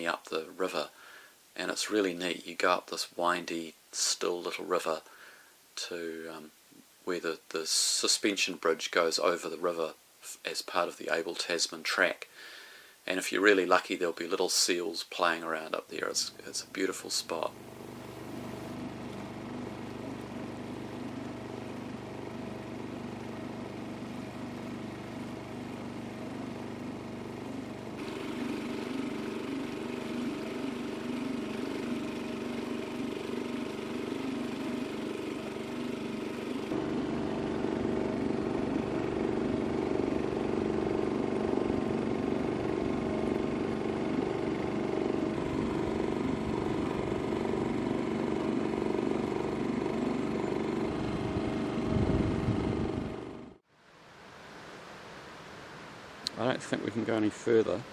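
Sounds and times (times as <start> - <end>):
small boat engine running: 16.3 - 53.6.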